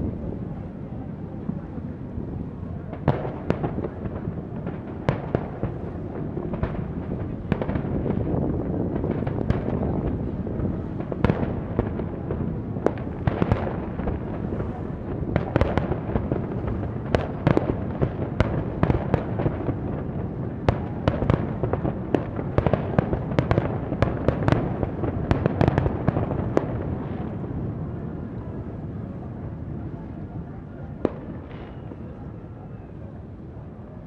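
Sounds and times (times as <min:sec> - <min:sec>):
fireworks bangs: 0:02.8 - 0:27.5.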